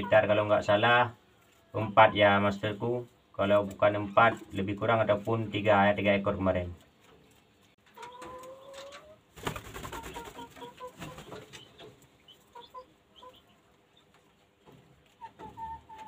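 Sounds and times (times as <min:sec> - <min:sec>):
bird calls: 0:07.1 - 0:16.0.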